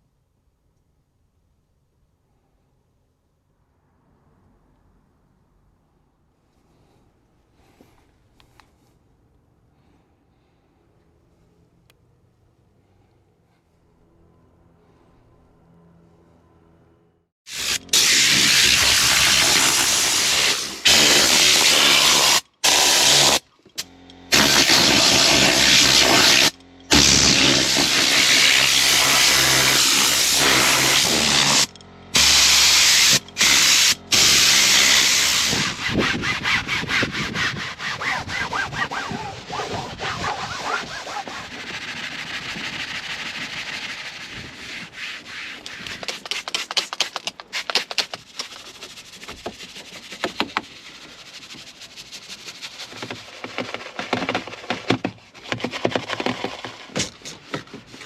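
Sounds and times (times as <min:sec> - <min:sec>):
brush scrubbing a surface: 0:17.5 - 0:23.4, 0:24.3 - 0:56.9
spray hissing: 0:17.5 - 0:23.4, 0:24.3 - 0:36.0.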